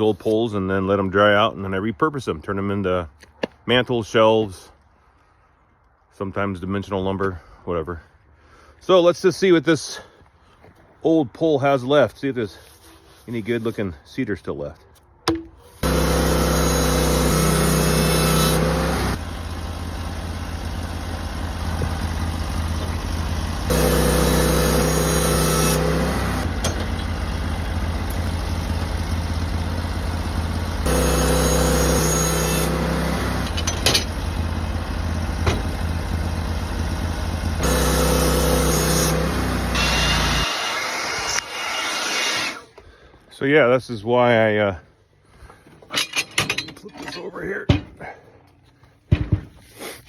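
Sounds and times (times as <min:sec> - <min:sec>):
saw cutting through wood: 0:15.6 - 0:42.8
sawmill engine running: 0:15.7 - 0:42.8.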